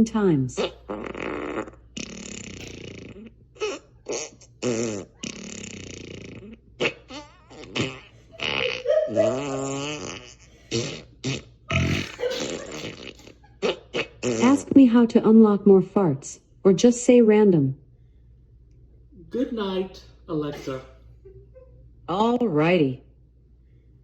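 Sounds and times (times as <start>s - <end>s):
fart sound effects: 0.5s - 15.0s.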